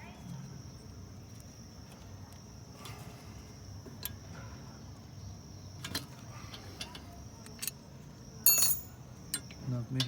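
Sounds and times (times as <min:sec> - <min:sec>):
metallic tool clicks and knocks: 0:08.5 - 0:09.5.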